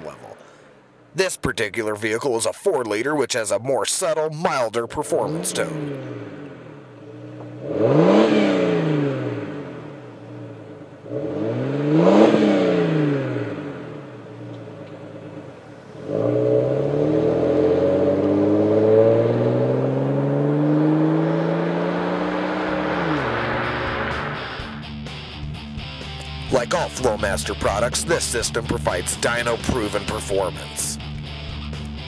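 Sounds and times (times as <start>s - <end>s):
car engine revving and accelerating: 5.1s - 25.0s.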